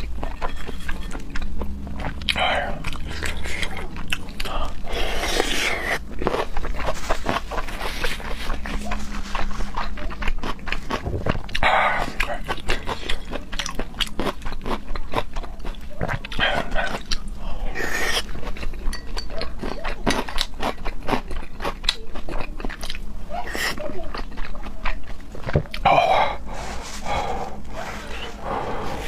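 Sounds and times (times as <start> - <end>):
wet chewing of seafood: 0.0 - 29.0
slurps: 2.2 - 9.9.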